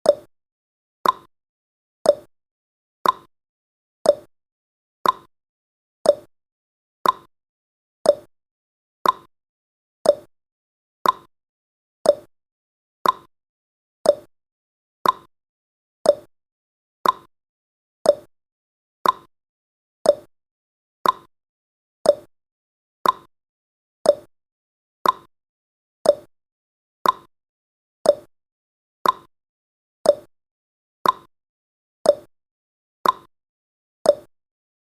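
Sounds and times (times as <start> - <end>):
clock tick-tock: 0.0 - 0.3, 1.0 - 1.3, 2.0 - 2.3, 3.0 - 3.3, 4.0 - 4.3, 5.0 - 5.3, 6.0 - 6.3, 7.0 - 7.3, 8.0 - 8.3, 9.0 - 9.3, 10.0 - 10.3, 11.0 - 11.3, 12.0 - 12.3, 13.0 - 13.3, 14.0 - 14.3, 15.0 - 15.3, 16.0 - 16.3, 17.0 - 17.3, 18.0 - 18.3, 19.0 - 19.3, 20.0 - 20.3, 21.0 - 21.3, 22.0 - 22.3, 23.0 - 23.3, 24.0 - 24.3, 25.0 - 25.3, 26.0 - 26.3, 27.0 - 27.3, 28.0 - 28.3, 29.0 - 29.3, 30.0 - 30.3, 31.0 - 31.3, 32.0 - 32.3, 33.0 - 33.3, 34.0 - 34.3.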